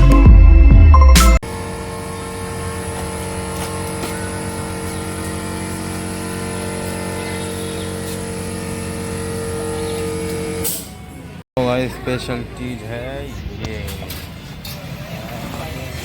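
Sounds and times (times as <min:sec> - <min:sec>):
motor droning hum: 0:01.4 - 0:11.4.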